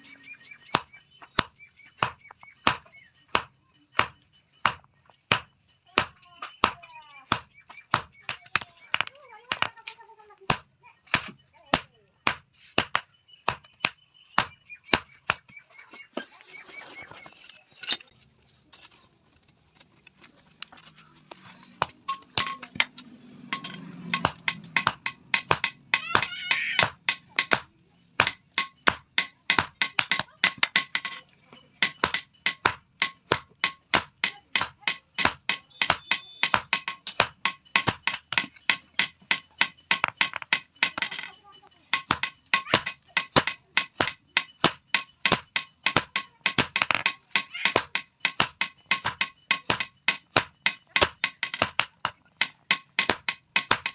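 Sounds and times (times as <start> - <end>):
hammer ringing on anvil: 0.8 - 9.7, 22.1 - 31.2, 31.8 - 53.9.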